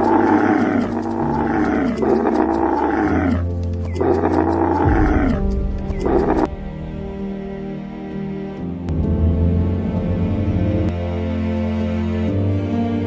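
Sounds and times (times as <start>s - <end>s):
camel calling: 0.0s - 6.5s
dark background music: 0.0s - 13.0s.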